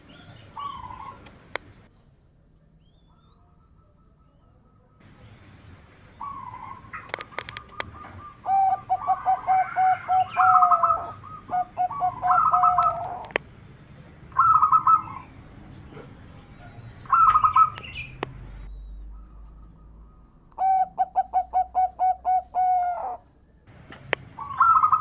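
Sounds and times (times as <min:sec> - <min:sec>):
dove cooing: 0:00.0 - 0:01.5, 0:06.1 - 0:13.4, 0:14.3 - 0:15.3, 0:16.6 - 0:18.2, 0:19.1 - 0:23.2, 0:24.3 - 0:25.0.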